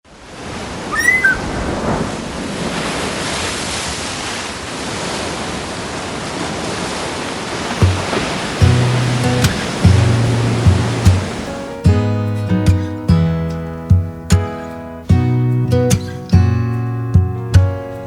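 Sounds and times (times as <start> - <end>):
steady rushing outdoor noise: 0.0 - 13.2
short high call: 0.9 - 1.5
music: 7.8 - 18.0.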